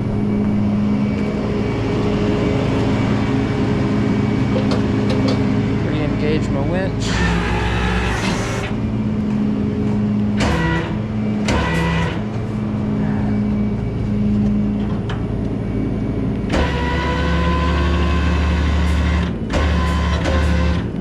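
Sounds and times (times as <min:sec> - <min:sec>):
tow truck winch humming: 0:00.0 - 0:21.0
sharp clicks and knocks: 0:10.2 - 0:12.4.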